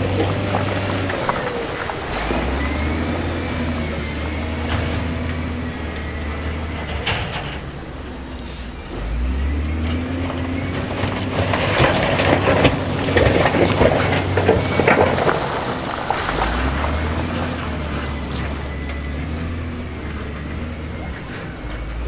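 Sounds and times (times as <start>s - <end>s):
diesel engine humming: 0.0s - 22.0s
stones clattering and scraping: 10.2s - 17.7s.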